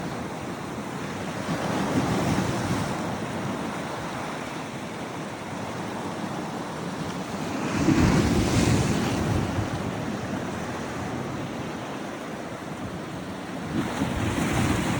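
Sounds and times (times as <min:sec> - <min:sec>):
wind noise on microphone: 0:07.4 - 0:14.9.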